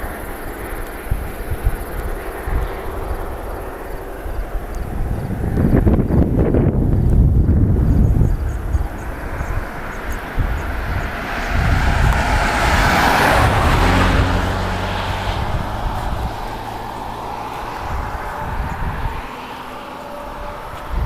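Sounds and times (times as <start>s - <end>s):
wind buffeting microphone: 0.0s - 21.0s
vehicle passing by: 7.6s - 21.0s.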